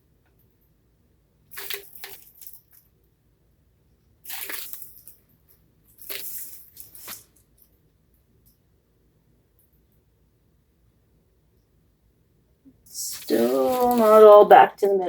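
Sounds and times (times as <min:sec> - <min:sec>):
crinkling rustling handling noise: 0:06.0 - 0:07.4, 0:13.0 - 0:15.0.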